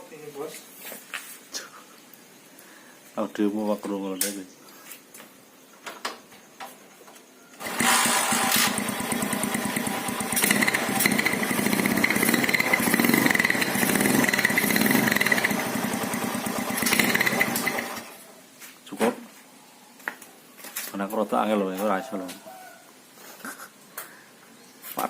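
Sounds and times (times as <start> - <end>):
motorcycle engine running loudly: 7.6 - 18.1.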